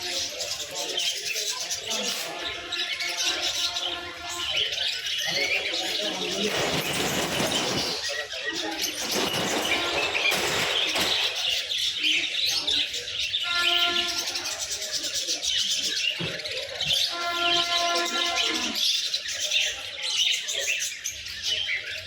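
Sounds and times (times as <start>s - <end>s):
small cage birds chirping: 0.0s - 22.0s.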